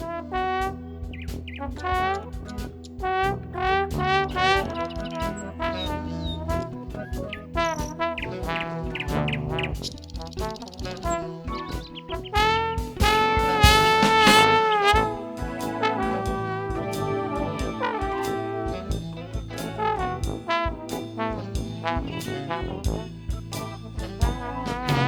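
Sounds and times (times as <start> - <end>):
brass band playing: 0.0 - 25.0
drum beat: 0.0 - 25.0.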